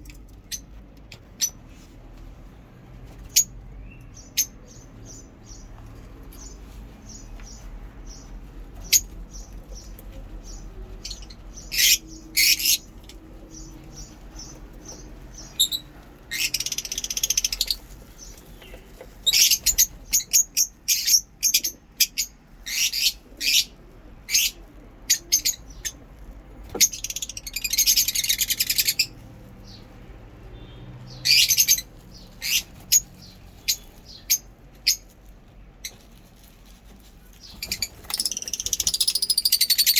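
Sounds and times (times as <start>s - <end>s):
lovebirds chirping: 0.0s - 2.4s, 3.0s - 39.9s
harsh bird chattering: 13.5s - 26.0s, 37.4s - 39.9s.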